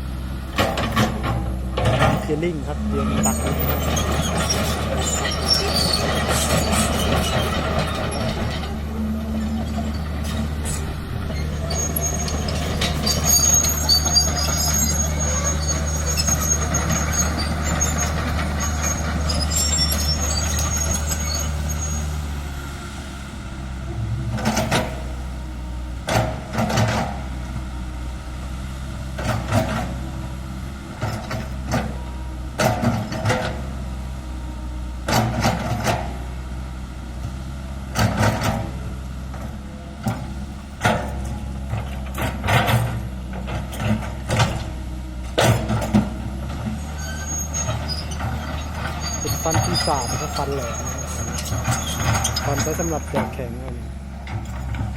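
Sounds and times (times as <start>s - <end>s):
excavator diesel engine running: 0.0s - 54.9s
sharp knocks and clanks: 23.9s - 25.3s.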